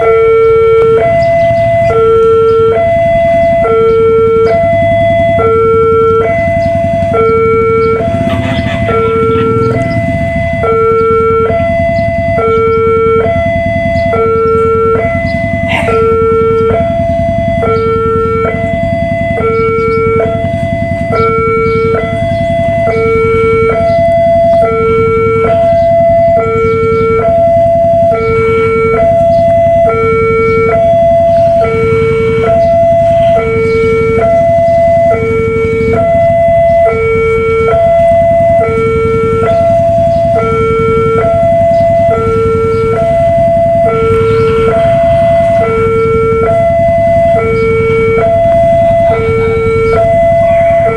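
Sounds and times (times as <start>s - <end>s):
level crossing two-tone alarm: 0.0s - 50.9s.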